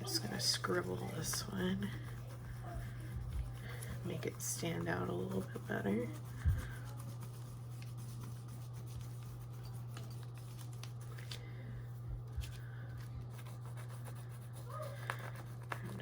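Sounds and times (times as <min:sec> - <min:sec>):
crayon scribbling on paper: 0:00.0 - 0:11.0, 0:13.2 - 0:16.0
steady low hum: 0:00.0 - 0:16.0.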